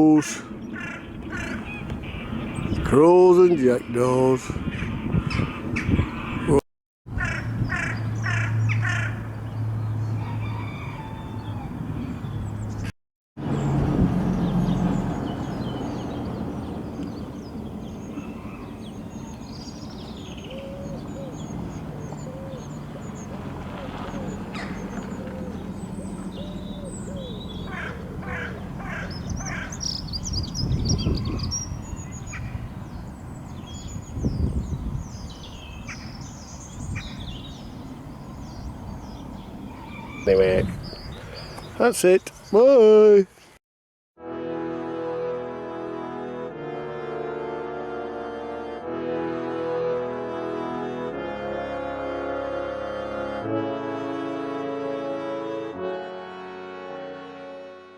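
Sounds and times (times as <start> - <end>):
low arched bird calls: 0.0 - 3.2, 3.8 - 42.8
harsh bird calls: 0.0 - 43.3
crows calling harshly: 0.4 - 2.7, 4.6 - 6.5, 7.1 - 9.4, 18.1 - 25.7, 26.3 - 30.2, 39.4 - 41.7
small birds chirping: 0.4 - 3.0, 7.2 - 43.6
low rumbles on microphone: 13.5 - 41.8.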